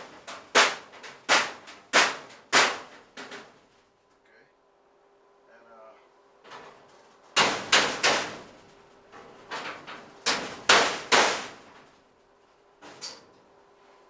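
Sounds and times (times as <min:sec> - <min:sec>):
hammer clanging on sheet metal: 0:00.0 - 0:03.5, 0:07.4 - 0:08.5, 0:09.5 - 0:11.7.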